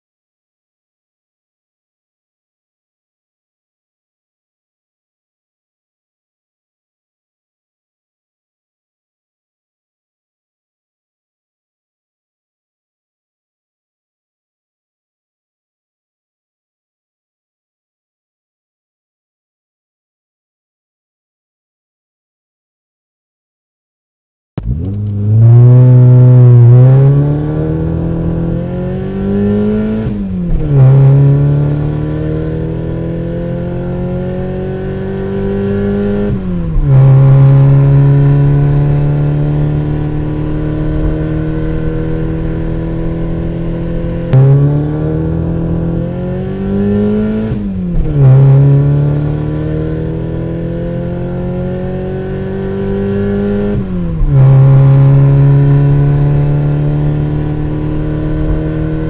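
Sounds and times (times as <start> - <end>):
vehicle engine accelerating hard: 24.6 - 59.0.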